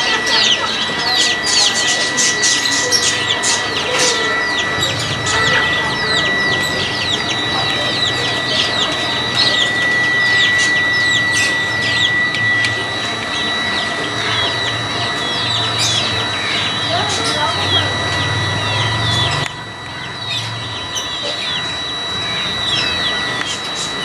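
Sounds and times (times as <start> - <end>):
small birds chirping: 0.0 - 24.0
steady high-pitched tone: 0.0 - 24.0.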